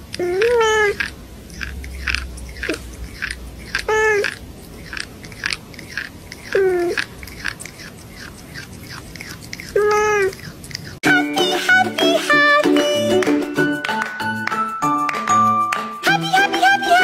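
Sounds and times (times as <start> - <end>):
cat crunching food: 0.0 - 11.0.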